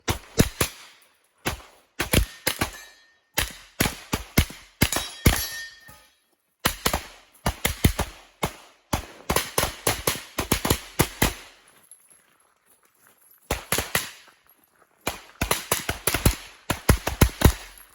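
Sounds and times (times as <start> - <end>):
pistol gunshots: 0.0 - 5.7, 6.6 - 11.5, 13.5 - 14.2, 15.1 - 17.9
metallic ring of steel targets: 0.2 - 3.8, 4.8 - 6.3.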